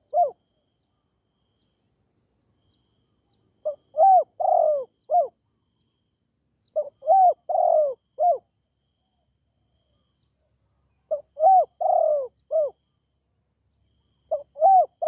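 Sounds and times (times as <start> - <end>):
dove cooing: 0.0 - 0.4, 3.6 - 5.4, 6.8 - 8.4, 11.1 - 12.8, 14.3 - 15.0.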